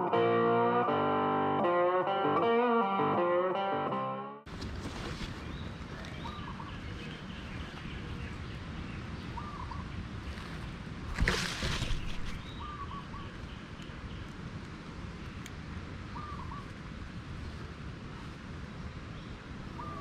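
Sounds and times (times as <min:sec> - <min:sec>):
brief rustle: 0:04.5 - 0:06.2, 0:10.3 - 0:12.6
steady background hiss: 0:04.5 - 0:20.0.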